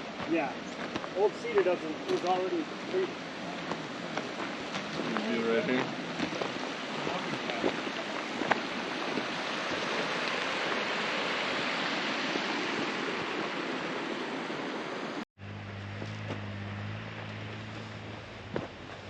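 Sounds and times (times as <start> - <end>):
mountain stream rushing: 0.0 - 19.0
steady low hum: 15.4 - 19.0.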